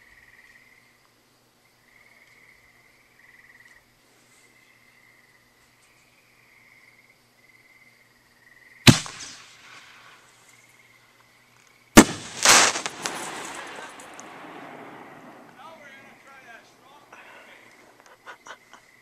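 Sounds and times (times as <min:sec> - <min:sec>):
crickets chirping: 0:00.0 - 0:19.0
fireworks banging: 0:08.9 - 0:10.2, 0:12.0 - 0:18.4
firework crackle: 0:08.9 - 0:10.4, 0:12.0 - 0:18.4.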